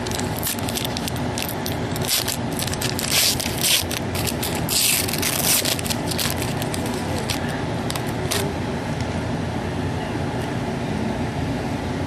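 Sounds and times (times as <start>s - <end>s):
cards and plastic crinkling: 0.0s - 8.5s
low background rumble: 0.0s - 12.0s.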